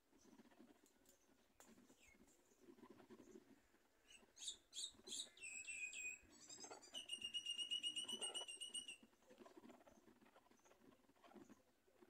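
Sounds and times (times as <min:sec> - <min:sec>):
bird chirping and trilling: 0:04.1 - 0:09.0.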